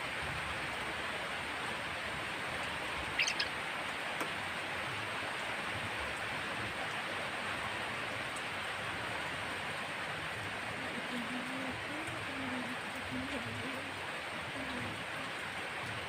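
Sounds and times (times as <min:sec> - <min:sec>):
harsh bird call: 0:03.2 - 0:03.5.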